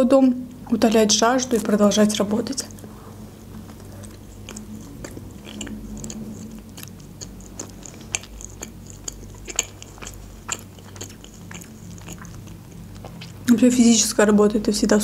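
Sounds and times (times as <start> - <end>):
person chewing food: 2.6 - 13.5.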